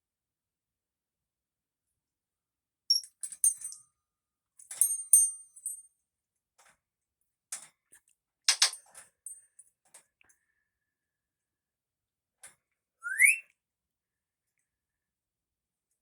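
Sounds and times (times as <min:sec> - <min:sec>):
bird chirping and whistling: 0:13.0 - 0:13.4
bird squawking: 0:13.0 - 0:13.4.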